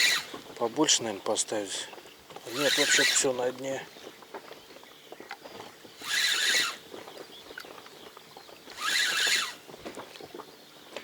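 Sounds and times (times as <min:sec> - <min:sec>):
fishing reel whirring: 0:00.0 - 0:00.4, 0:02.4 - 0:03.6, 0:06.0 - 0:06.9, 0:08.7 - 0:09.7.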